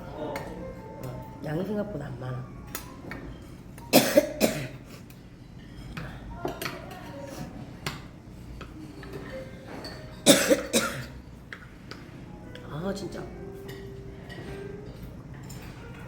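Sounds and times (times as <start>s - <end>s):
woman coughing: 3.9s - 4.8s, 10.2s - 11.1s.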